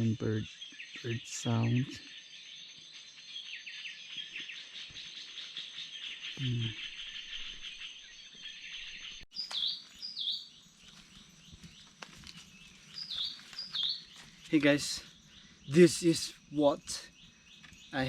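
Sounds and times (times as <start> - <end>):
birds chirping: 0.0 - 18.0
high insect drone: 10.9 - 18.0.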